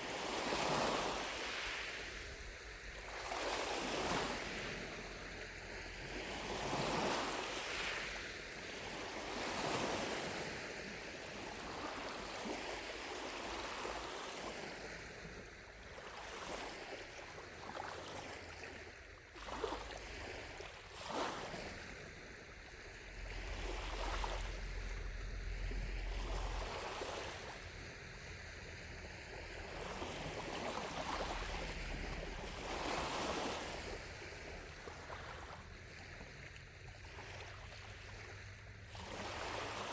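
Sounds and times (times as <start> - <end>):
waves lapping at shore: 0.0 - 39.9
water splashes: 0.2 - 39.9.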